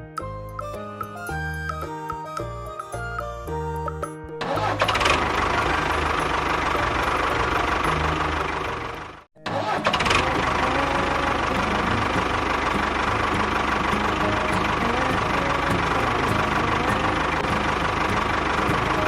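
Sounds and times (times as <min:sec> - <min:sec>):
engine knocking beat: 0:04.4 - 0:19.0.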